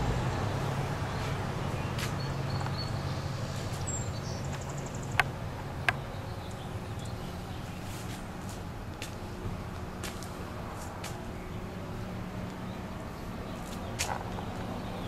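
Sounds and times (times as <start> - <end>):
bird chirp and trill: 1.1 - 8.0.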